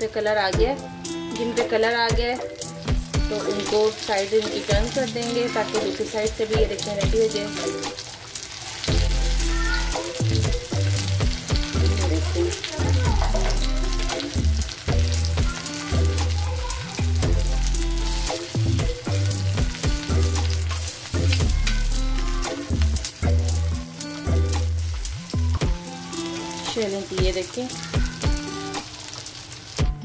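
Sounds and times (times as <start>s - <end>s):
patties sizzling in hot oil: 0.0s - 30.0s
background music with bass line: 0.6s - 3.8s, 8.8s - 26.6s, 27.2s - 28.8s
spatula turning food in pan: 1.3s - 30.0s.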